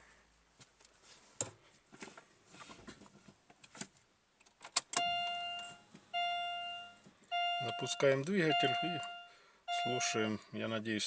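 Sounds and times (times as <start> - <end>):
clicks and handling noises in car: 0.6 - 10.5
dashboard warning chime dinging: 5.0 - 10.5.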